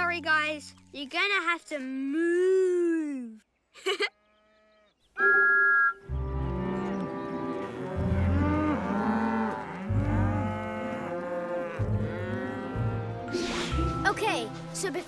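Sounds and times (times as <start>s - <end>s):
cartoon cows mooing: 6.1s - 13.3s.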